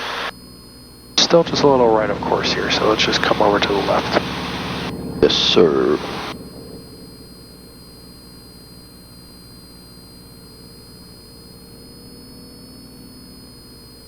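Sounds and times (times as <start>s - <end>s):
airplane engine drone: 1.2s - 8.4s
high-pitched whine: 1.2s - 8.9s.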